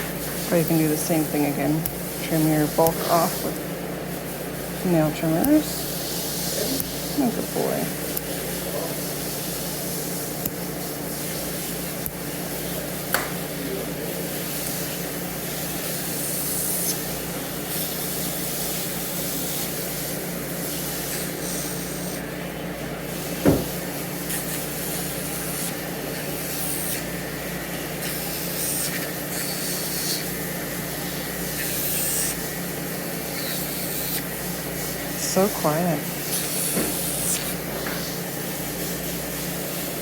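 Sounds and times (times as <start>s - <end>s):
grinding hiss on toenail: 15.9s - 17.1s, 17.7s - 22.2s, 24.2s - 27.2s, 28.0s - 30.5s, 31.4s - 38.2s
nail grinder humming: 24.2s - 27.2s, 27.9s - 30.4s, 31.5s - 32.5s, 33.3s - 34.4s, 35.2s - 37.7s.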